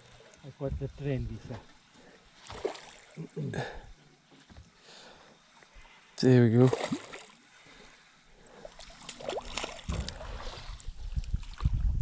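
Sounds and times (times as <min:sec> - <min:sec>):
wind rumble on microphone: 0:00.6 - 0:01.6, 0:09.8 - 0:12.0.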